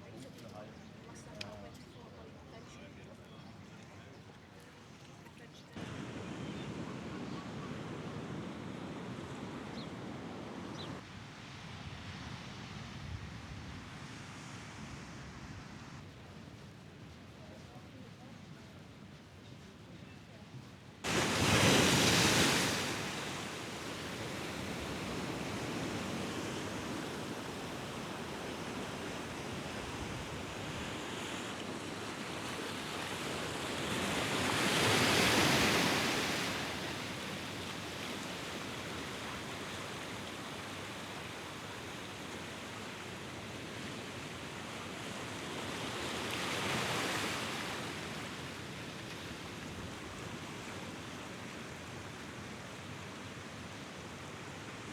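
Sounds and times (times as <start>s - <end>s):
sea waves breaking: 21.0s - 39.6s.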